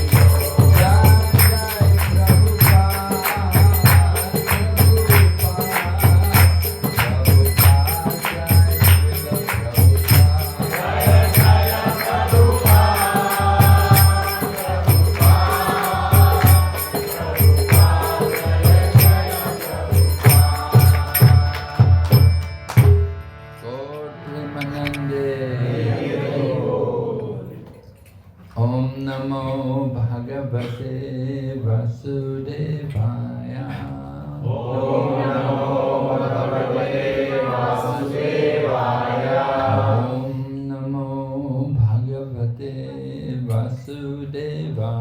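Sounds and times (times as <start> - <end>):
group singing: 0.0 - 22.2, 24.5 - 27.8, 32.9 - 40.7
small hand cymbals ringing: 0.0 - 23.0
hand drum beat: 0.0 - 23.2.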